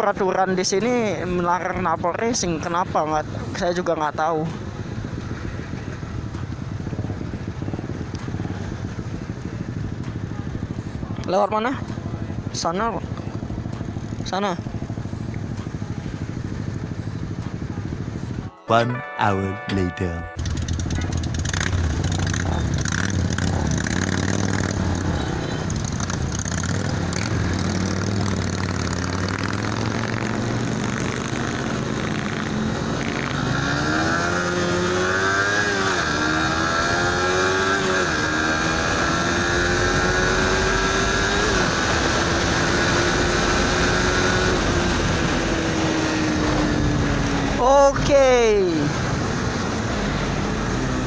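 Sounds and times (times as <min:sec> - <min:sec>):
motorcycle revving and pulling away: 0:00.0 - 0:18.4, 0:20.4 - 0:51.0
motorcycle engine idling: 0:04.6 - 0:18.4, 0:20.4 - 0:27.3.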